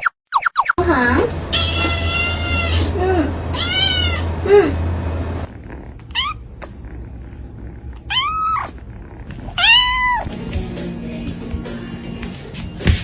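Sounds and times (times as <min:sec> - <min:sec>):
cat meowing: 0:01.5 - 0:02.9, 0:03.5 - 0:04.3, 0:06.1 - 0:06.4, 0:08.0 - 0:08.8, 0:09.4 - 0:10.3.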